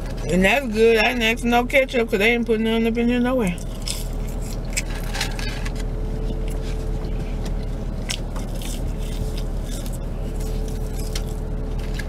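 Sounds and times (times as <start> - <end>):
low engine hum: 0.0 - 12.0
person chewing: 3.6 - 12.0.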